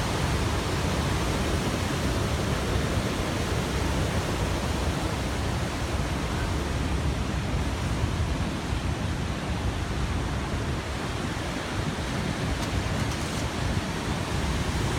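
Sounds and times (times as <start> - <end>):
waves breaking: 10.5 - 14.9.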